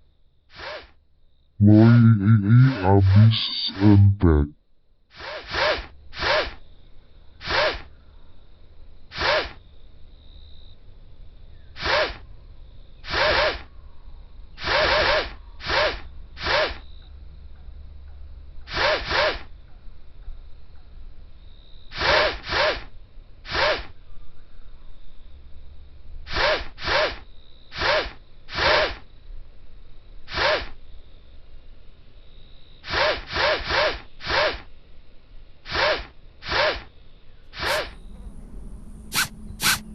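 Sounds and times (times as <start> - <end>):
short scratchy rubbing sounds: 37.6 - 38.0, 39.1 - 39.9.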